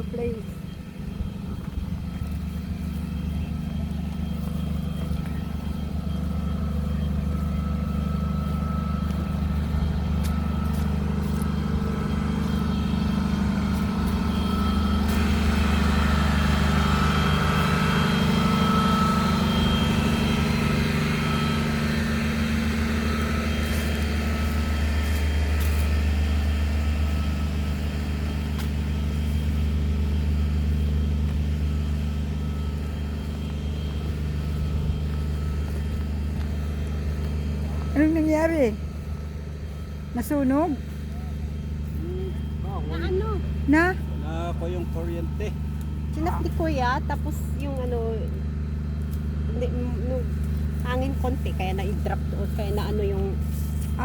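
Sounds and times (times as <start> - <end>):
vehicle engine humming: 0.0 - 54.0.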